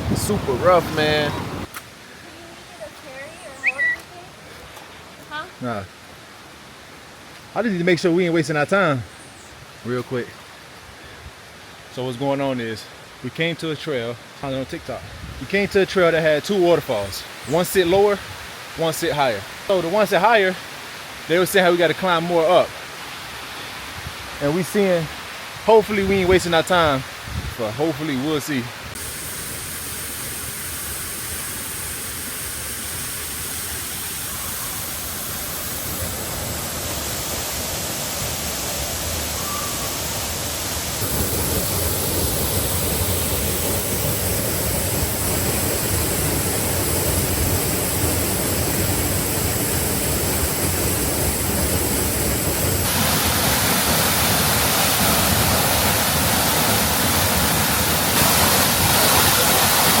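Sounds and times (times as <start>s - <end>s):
waterfall rushing: 0.0s - 1.7s, 28.0s - 60.0s.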